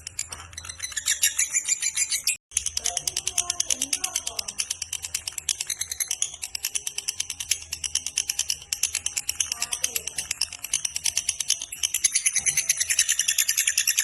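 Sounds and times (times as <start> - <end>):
lovebird chattering call: 9.0 - 14.0.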